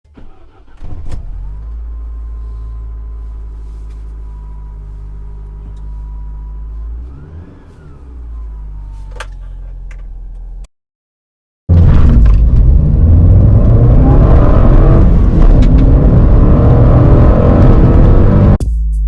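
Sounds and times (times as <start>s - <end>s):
car engine idling: 0.2s - 10.7s.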